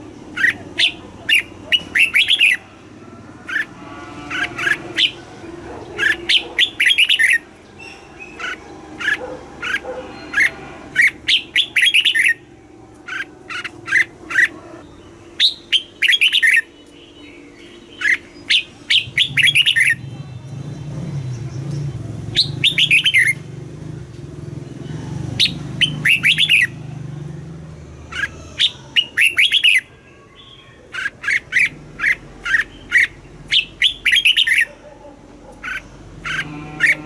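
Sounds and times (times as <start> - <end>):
bird singing whistled notes: 6.0 - 12.4, 13.1 - 20.1, 28.6 - 30.6.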